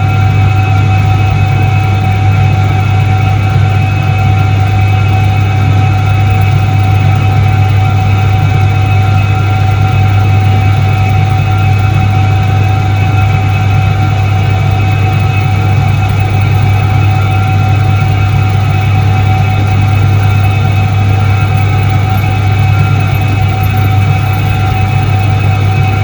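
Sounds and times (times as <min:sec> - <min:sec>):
washing machine motor hum: 0:00.0 - 0:26.0
high whining tones: 0:05.4 - 0:26.0.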